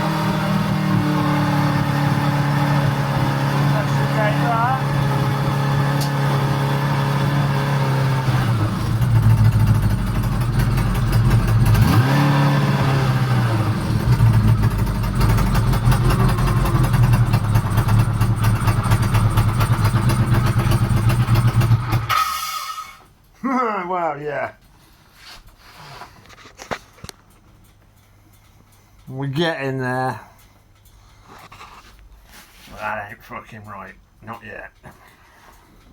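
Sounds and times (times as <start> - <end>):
motorcycle engine running: 0.0 - 22.1.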